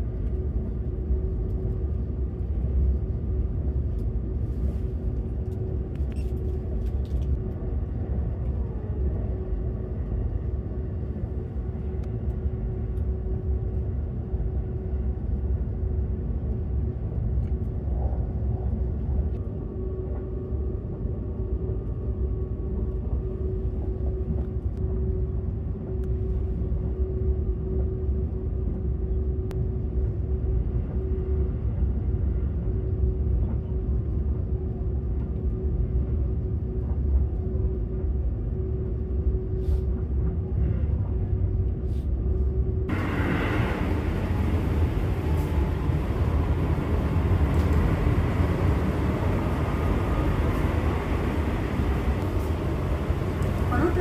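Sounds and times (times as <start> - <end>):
steady hum: 0.0 - 54.0
train wheels rumbling on rail: 42.9 - 54.0.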